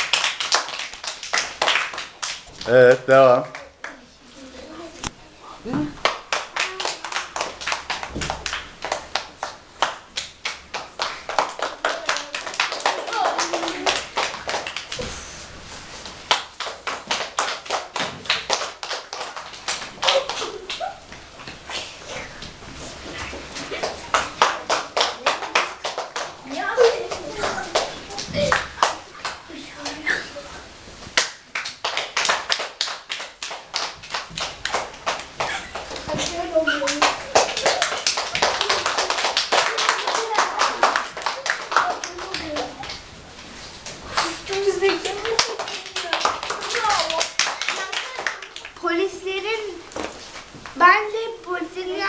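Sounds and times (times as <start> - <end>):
children clapping: 0.0 - 4.0, 6.0 - 15.1, 16.0 - 21.2, 23.6 - 30.0, 31.2 - 43.1, 43.8 - 49.2.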